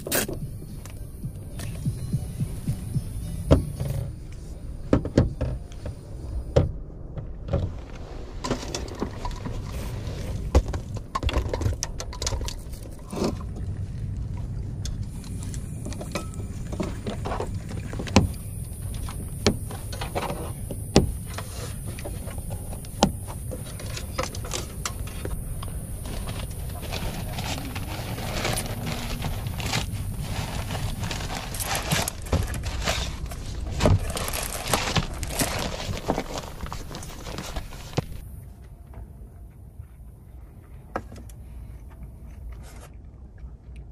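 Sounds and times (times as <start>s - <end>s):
wind rumbling on microphone: 0.0s - 41.8s
handling clicks and knocks: 10.5s - 13.8s.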